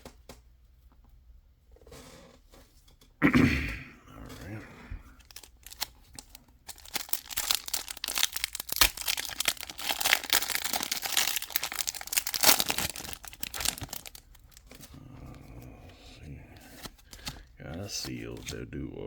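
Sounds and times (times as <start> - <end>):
foil wrapper crinkling and tearing: 5.0 - 15.5, 16.6 - 18.7.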